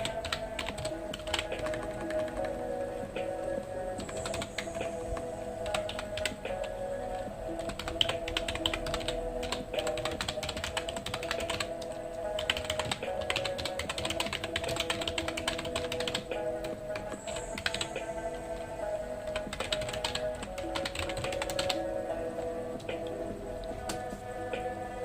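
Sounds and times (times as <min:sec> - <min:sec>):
fast typing on keyboard: 0:00.0 - 0:02.9, 0:04.0 - 0:06.8, 0:07.6 - 0:17.9, 0:19.3 - 0:21.8
soft background music: 0:00.0 - 0:25.0.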